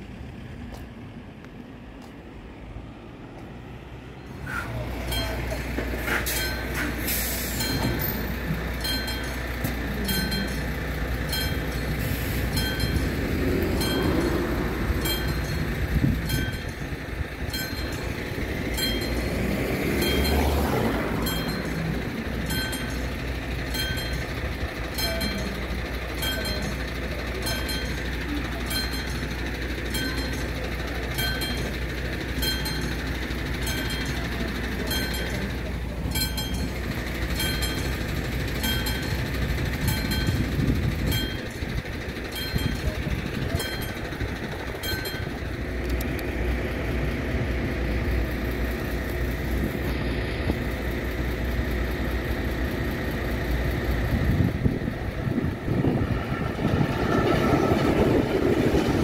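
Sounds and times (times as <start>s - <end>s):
passing train rumble: 0.0s - 59.0s
level crossing bell ringing: 5.0s - 6.9s, 7.5s - 45.8s.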